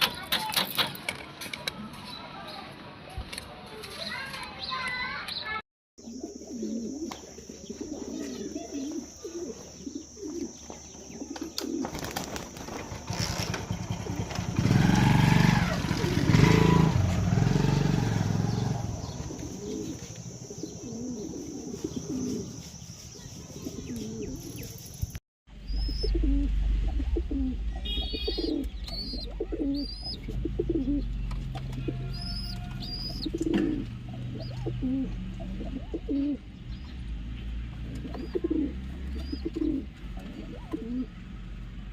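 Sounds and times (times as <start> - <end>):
small birds chirping: 1.6 - 41.9
pigeons cooing: 6.0 - 22.6, 23.5 - 24.8, 25.6 - 36.8, 37.8 - 41.2.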